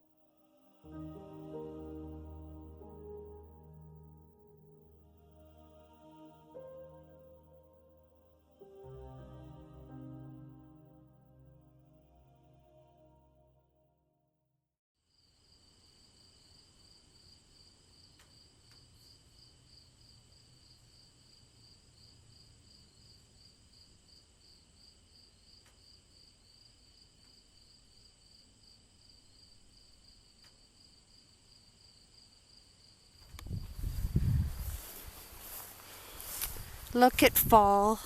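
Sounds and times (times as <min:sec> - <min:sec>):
crickets chirping: 0:15.0 - 0:37.3.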